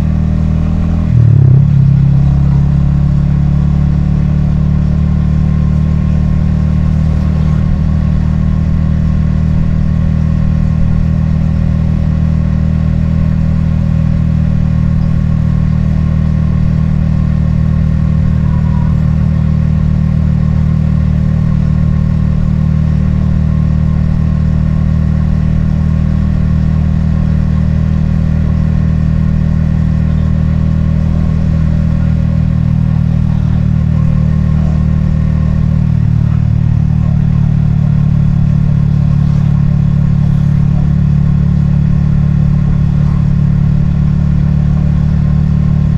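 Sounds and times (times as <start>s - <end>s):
motorcycle engine cruising: 0.0s - 45.9s.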